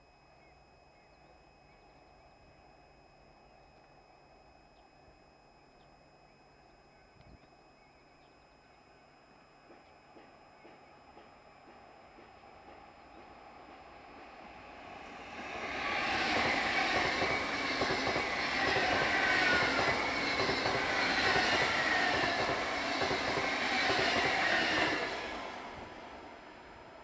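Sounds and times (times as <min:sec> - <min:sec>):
high-speed electric train passing: 0:08.1 - 0:27.0.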